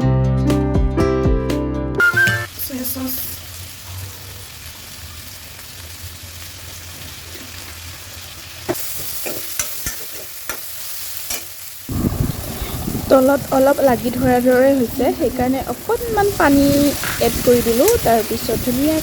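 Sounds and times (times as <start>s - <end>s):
chicken sizzling in a pan: 2.5s - 19.0s
spatula scraping and tapping pan: 9.2s - 10.7s.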